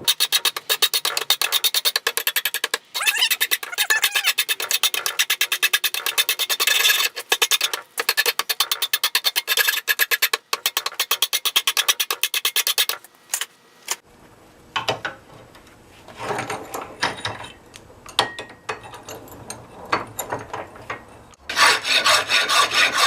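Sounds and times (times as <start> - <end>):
rasp filing steel: 0.0 - 13.0, 21.5 - 23.0.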